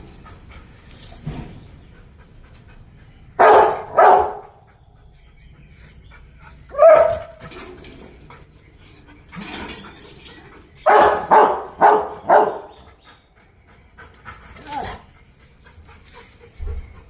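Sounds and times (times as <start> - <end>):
dog barking: 3.4 - 4.6, 6.7 - 7.4, 10.8 - 12.8.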